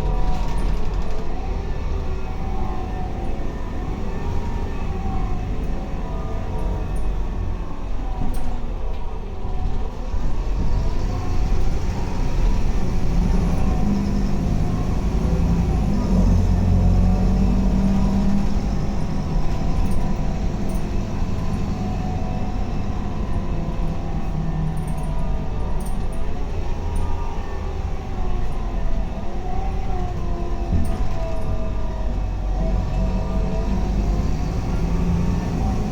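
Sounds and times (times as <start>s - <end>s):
bus engine accelerating: 0.0s - 35.9s.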